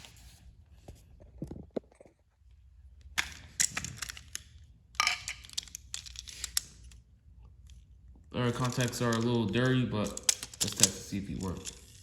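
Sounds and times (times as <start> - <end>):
plastic toy clicks and rustles: 3.2 - 7.0, 8.5 - 12.0.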